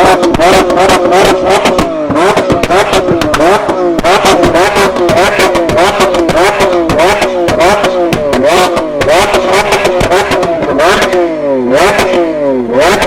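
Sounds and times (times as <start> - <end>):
exhaust crackles: 0.0 - 13.0
sports car engine revving: 0.0 - 13.0.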